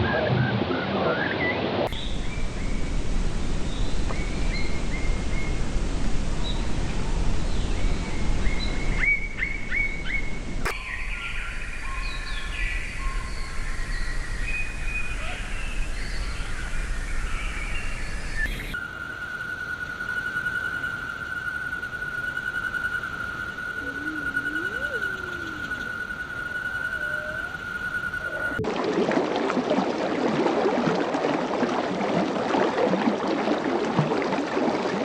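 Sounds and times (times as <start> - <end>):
outdoor background noise: 0.0 - 35.0
birds chirping and calling: 23.8 - 28.6.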